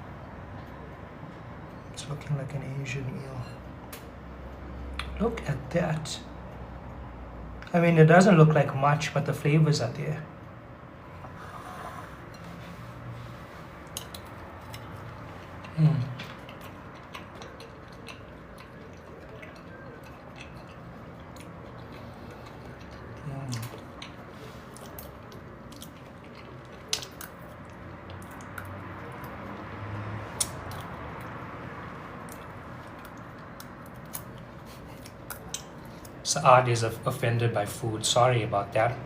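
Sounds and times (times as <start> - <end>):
wet chewing: 12.2 - 36.2
low vocal hum: 15.6 - 16.4.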